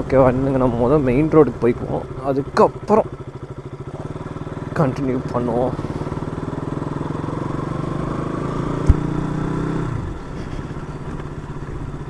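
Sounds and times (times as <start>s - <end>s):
motorcycle engine running: 0.0s - 12.0s
sharp knock: 8.8s - 9.2s.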